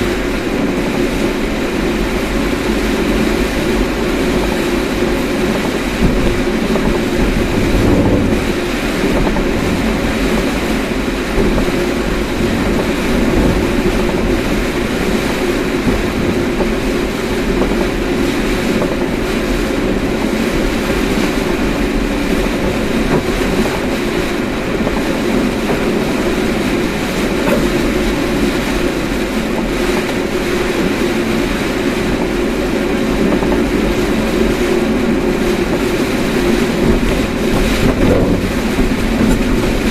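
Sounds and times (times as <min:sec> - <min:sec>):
car driving rumble: 0:31.5 - 0:39.9.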